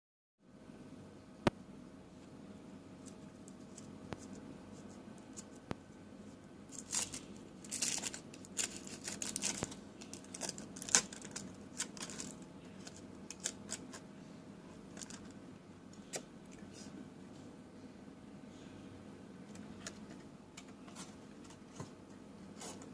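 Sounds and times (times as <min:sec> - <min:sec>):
rustling and scraping handling noise: 0:03.0 - 0:17.6, 0:19.4 - 0:22.9.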